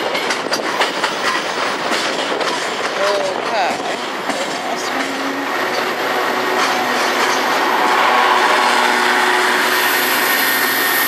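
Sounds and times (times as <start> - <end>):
train wheels on rails: 0.0 - 11.0.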